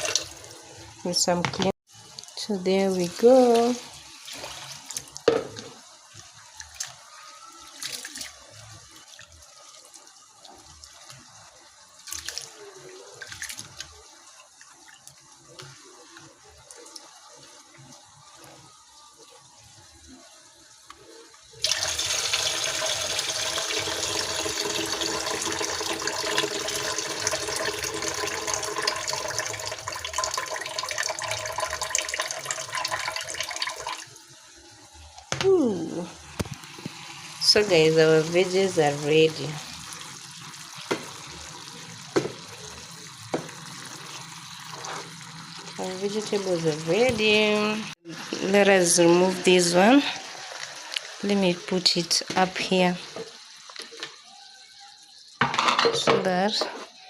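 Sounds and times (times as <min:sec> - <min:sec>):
water running into a pot: 0:00.0 - 0:56.4
faint sloshing: 0:02.2 - 0:19.5.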